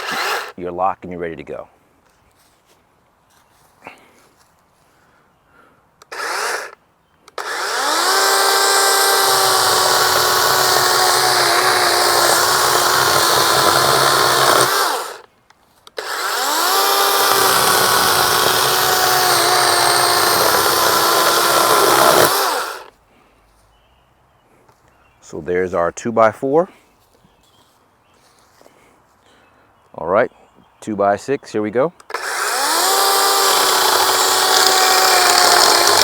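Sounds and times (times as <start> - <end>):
electric chainsaw cutting wood: 0.0 - 0.6, 6.0 - 15.3, 16.0 - 22.9, 32.1 - 36.0.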